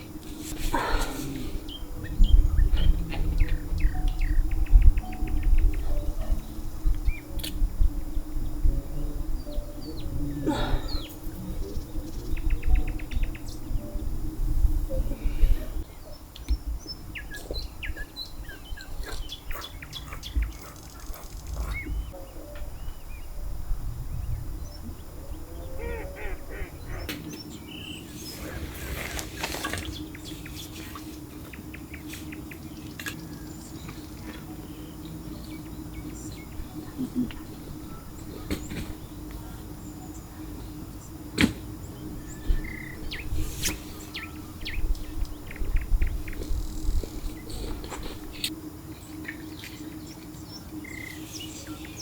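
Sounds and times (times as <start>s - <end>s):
heavy low rumble: 0.0s - 17.7s, 21.6s - 27.1s
low hum: 0.0s - 18.8s, 21.3s - 52.0s
birds chirping: 0.0s - 52.0s.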